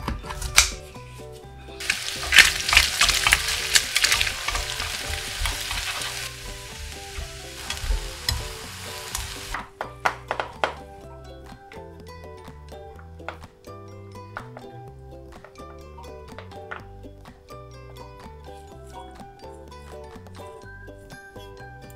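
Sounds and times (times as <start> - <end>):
soft background music: 0.0 - 21.9
food sizzling in a frying pan: 1.8 - 9.6
wooden spatula scraping pan: 1.8 - 9.6.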